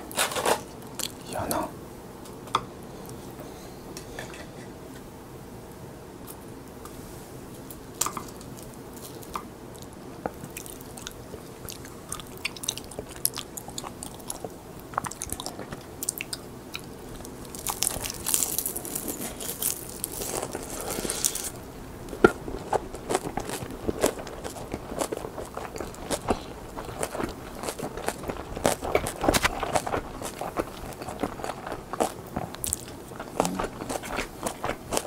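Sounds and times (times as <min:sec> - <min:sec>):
crisp seaweed crunching: 0:17.2 - 0:21.5.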